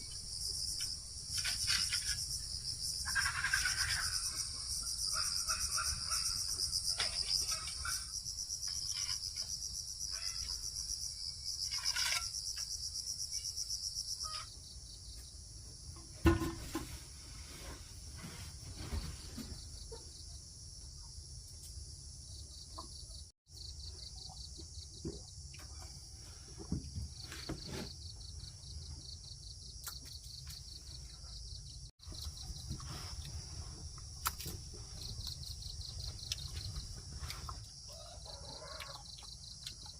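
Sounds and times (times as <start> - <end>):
insects chorus pulsing: 0.0 - 15.2.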